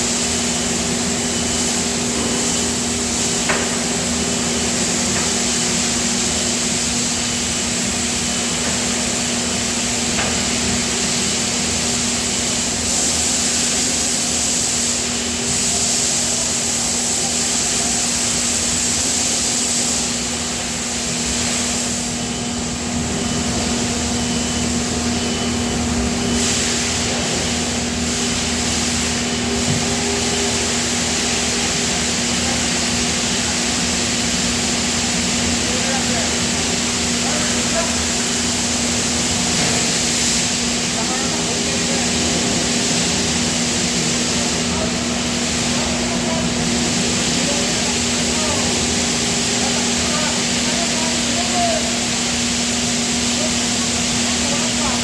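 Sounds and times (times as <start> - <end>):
machinery hum: 0.0 - 55.0.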